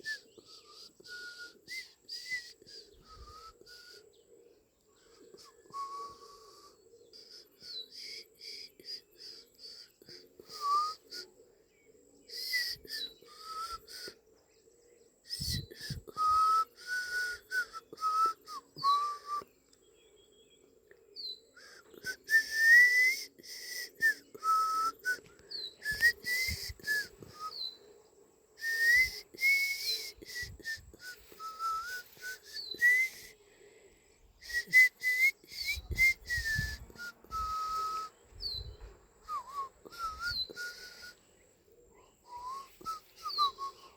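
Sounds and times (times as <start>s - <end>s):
person whistling a tune: 0.0s - 3.9s, 5.7s - 6.7s, 10.4s - 11.2s, 12.4s - 14.1s, 15.4s - 19.5s, 22.0s - 27.7s, 28.6s - 33.3s, 34.4s - 41.2s, 42.3s - 43.9s.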